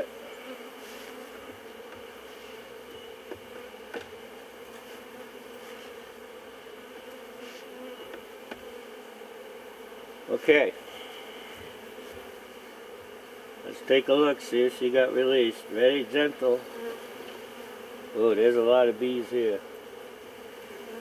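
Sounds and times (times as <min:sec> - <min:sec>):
bees buzzing in hive: 0:00.0 - 0:21.0
hive frames clicking: 0:03.2 - 0:04.2.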